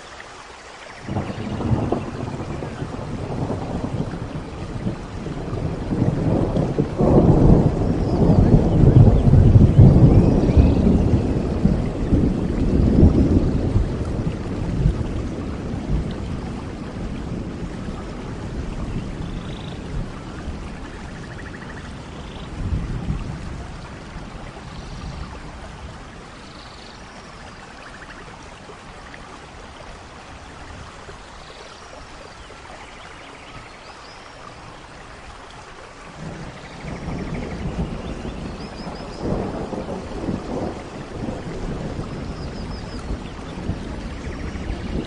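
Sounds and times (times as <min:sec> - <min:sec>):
steady rain: 0:00.0 - 0:45.0
rolling thunder: 0:01.0 - 0:27.4, 0:36.1 - 0:45.0.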